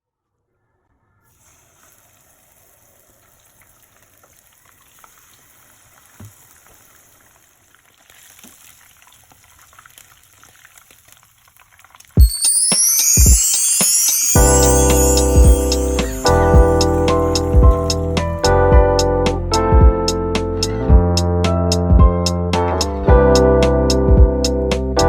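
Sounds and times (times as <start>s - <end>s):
food frying in hot oil: 1.3s - 12.2s
loud music: 12.2s - 19.9s.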